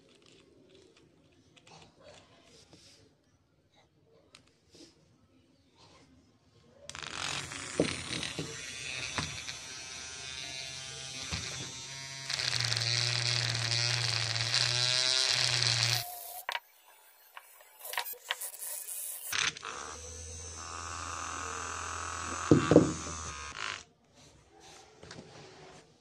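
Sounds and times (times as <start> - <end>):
small electric motor buzzing: 6.9 - 23.9.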